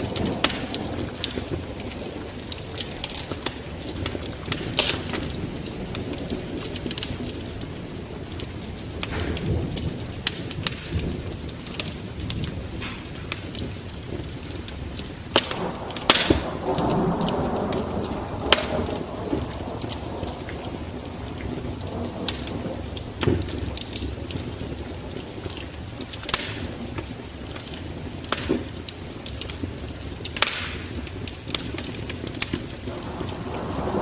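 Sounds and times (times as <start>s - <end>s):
wood fire crackling: 0.0s - 34.0s
low rumble: 15.5s - 21.8s.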